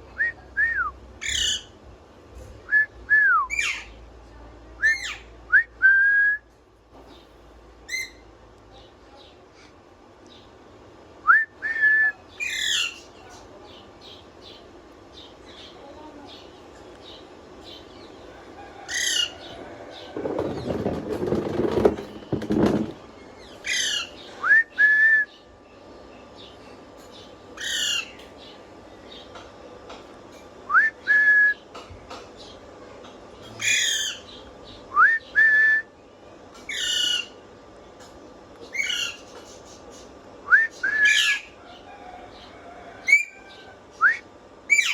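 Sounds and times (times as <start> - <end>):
parrot whistling: 40.5 - 41.5.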